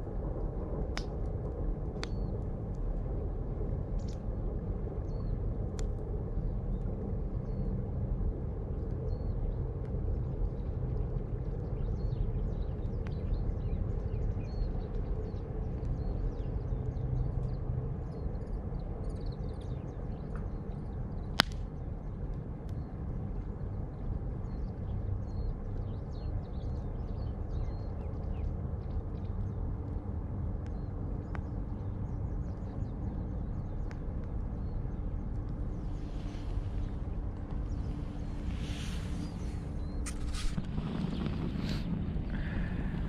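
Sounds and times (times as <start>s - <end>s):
wind rumble on microphone: 0.0s - 43.0s
small birds chirping: 30.7s - 43.0s.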